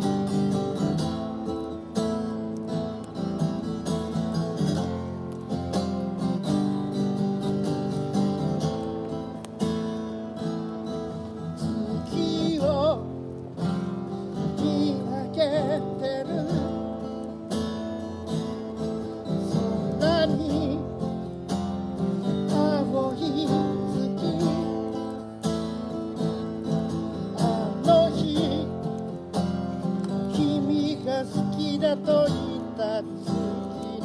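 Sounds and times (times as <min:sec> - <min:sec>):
acoustic guitar strumming chords: 0:00.0 - 0:34.0.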